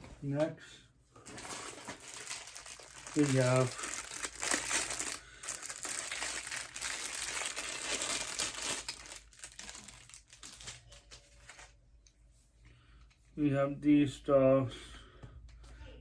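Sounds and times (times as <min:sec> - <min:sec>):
packaging crinkling and rustling: 0:01.2 - 0:11.8.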